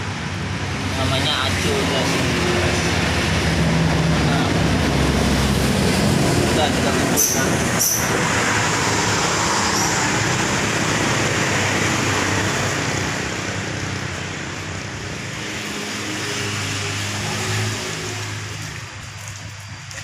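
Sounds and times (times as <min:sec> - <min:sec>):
low engine hum: 0:00.0 - 0:20.0
motor vehicle passing: 0:00.8 - 0:20.0.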